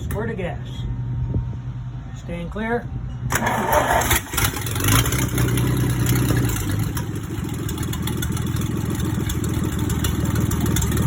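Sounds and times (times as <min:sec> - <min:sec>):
engine running then idling: 0:03.3 - 0:11.0.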